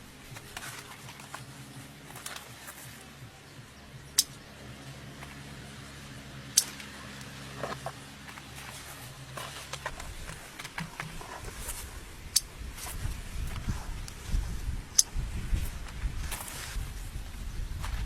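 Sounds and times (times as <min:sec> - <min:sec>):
low mechanical hum: 0:00.0 - 0:18.0
sharp clicks: 0:04.1 - 0:04.4.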